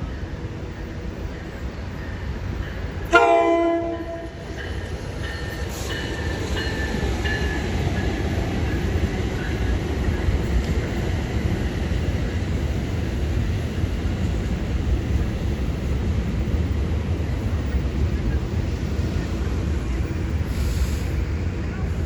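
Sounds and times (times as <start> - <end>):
train rumble: 0.0 - 22.0
train horn blast: 3.1 - 4.4.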